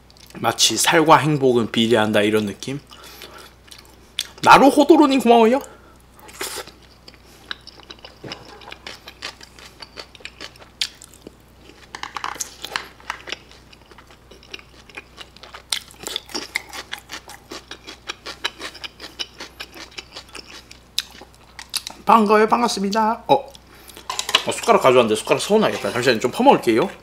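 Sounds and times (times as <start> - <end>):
chewing with mouth clicks: 6.1 - 22.1.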